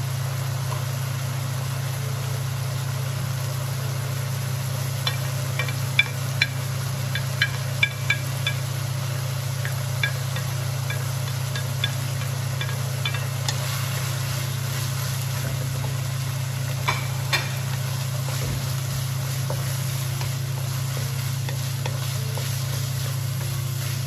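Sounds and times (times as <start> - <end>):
meat and onion sizzling in a wok: 0.0 - 24.0
spatula tapping on pan: 5.0 - 8.7, 9.6 - 13.7
wooden spatula stirring: 18.2 - 24.0.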